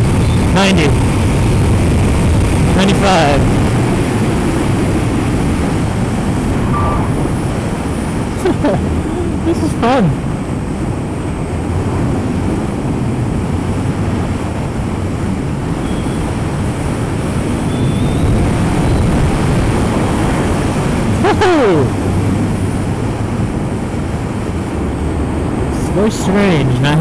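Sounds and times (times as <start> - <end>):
falling whine: 0.0 - 10.3
road noise: 0.0 - 27.0
wind rushing over microphone: 0.0 - 27.0.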